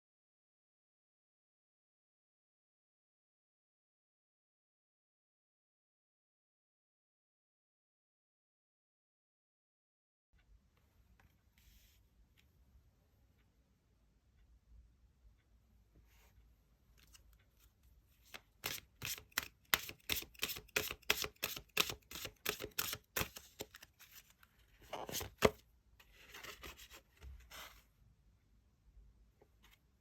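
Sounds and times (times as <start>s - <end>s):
cards being shuffled: 18.2s - 25.6s
cards sliding together: 18.2s - 25.6s, 26.2s - 27.8s
cards tapping: 18.6s - 23.9s.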